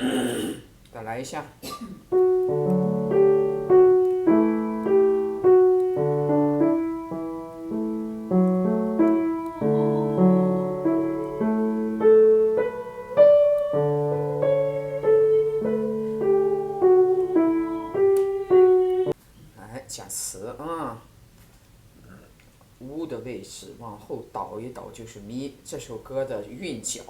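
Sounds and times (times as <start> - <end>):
piano melody over chords: 2.1 - 19.2.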